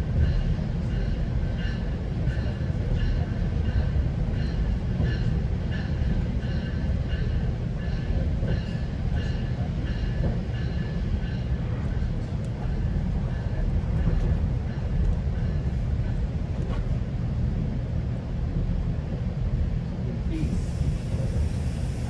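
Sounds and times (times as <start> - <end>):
train low rumble: 0.0 - 22.0.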